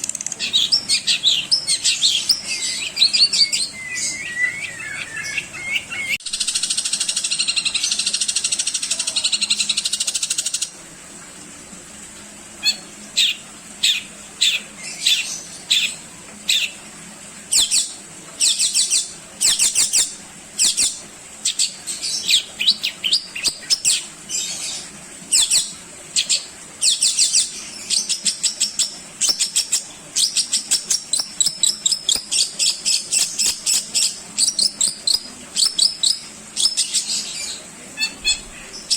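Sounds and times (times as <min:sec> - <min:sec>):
shrike singing: 0:00.2 - 0:06.2.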